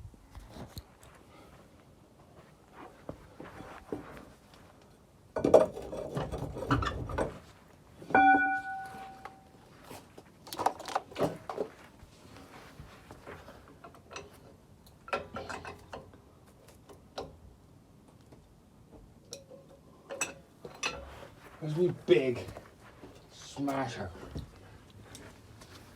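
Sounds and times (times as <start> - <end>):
ringing metallic clang: 8.1 - 9.5
metal clinks: 8.2 - 9.4.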